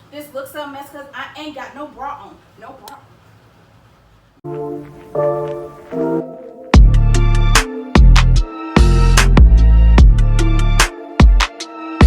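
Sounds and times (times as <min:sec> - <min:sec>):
hip-hop beat with heavy bass: 0:05.2 - 0:12.0.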